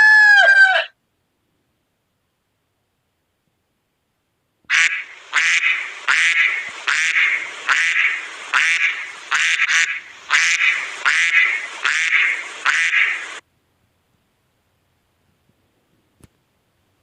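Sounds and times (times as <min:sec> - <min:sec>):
duck quacking: 0:04.7 - 0:13.4.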